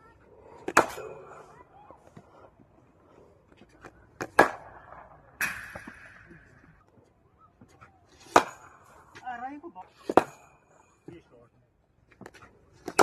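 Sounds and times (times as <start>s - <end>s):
cricket bat striking ball: 0.6s - 1.3s, 4.2s - 6.5s, 8.2s - 9.0s, 10.0s - 10.6s.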